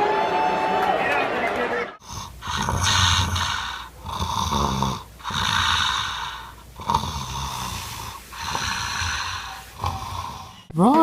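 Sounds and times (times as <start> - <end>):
loud snoring: 2.0 - 10.7.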